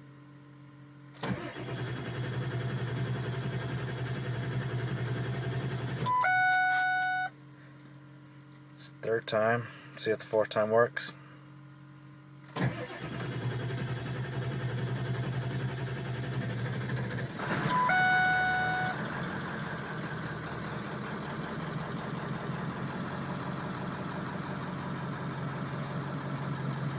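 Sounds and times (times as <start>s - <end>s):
truck engine cranking and idling: 1.2s - 6.2s, 12.6s - 26.9s
electronic beep: 6.0s - 7.3s, 17.7s - 19.0s.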